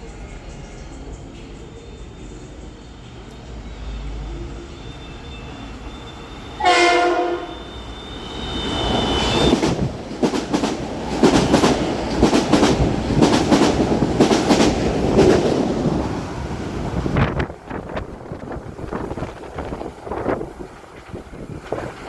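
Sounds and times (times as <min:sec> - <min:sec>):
train horn blast: 0:04.4 - 0:09.6
train wheels clicking over rail joints: 0:08.9 - 0:22.0.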